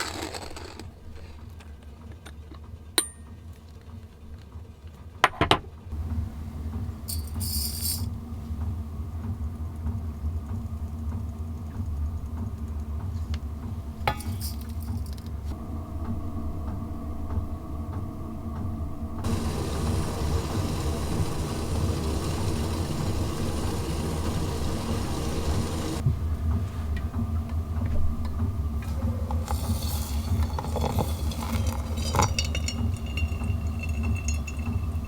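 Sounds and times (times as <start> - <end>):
low hum: 15.6 - 26.0
faint steady tones: 19.2 - 26.0.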